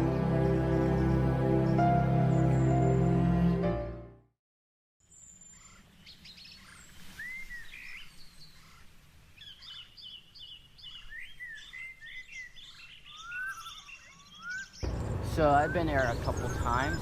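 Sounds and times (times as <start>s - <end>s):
small birds chirping and singing: 0.0s - 3.6s, 5.0s - 17.0s
low outdoor rumble: 14.8s - 17.0s.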